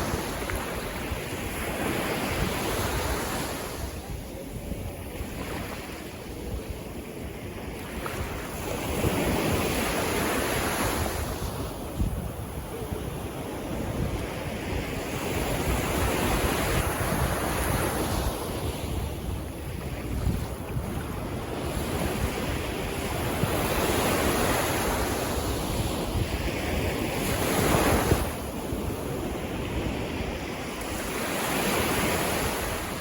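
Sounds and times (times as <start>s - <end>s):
wind buffeting microphone: 0.0s - 33.0s
sea waves breaking: 12.6s - 33.0s.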